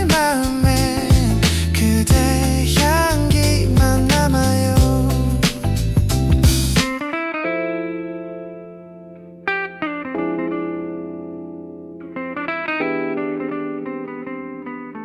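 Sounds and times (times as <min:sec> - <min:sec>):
guitar slow sustained chords: 0:07.1 - 0:15.0.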